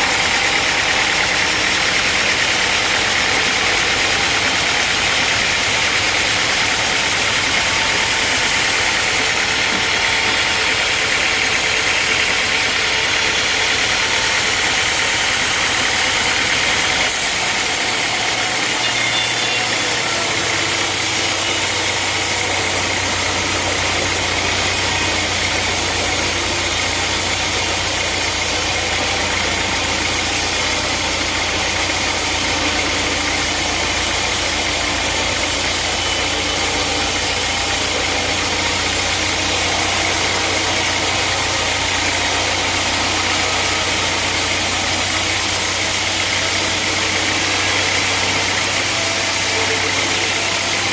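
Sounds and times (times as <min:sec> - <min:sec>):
sawmill machinery drone: 0:00.0 - 0:50.9.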